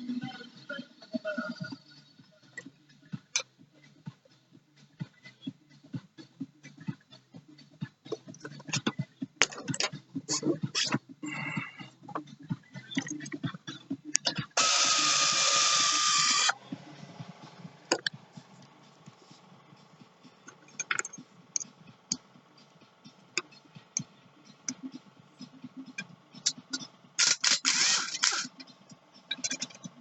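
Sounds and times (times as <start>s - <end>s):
power tool running: 14.6s - 16.6s, 27.2s - 28.5s
clicks and knocks of tools and metal: 29.3s - 30.0s.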